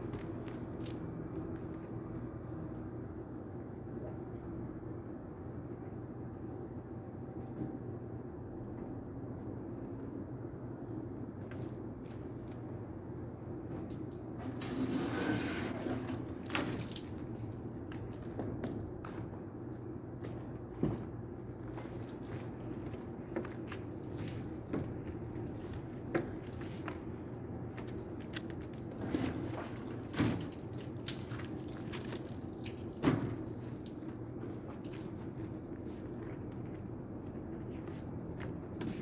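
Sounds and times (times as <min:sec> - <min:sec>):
water dripping and splashing: 0:00.0 - 0:05.9, 0:13.9 - 0:39.0.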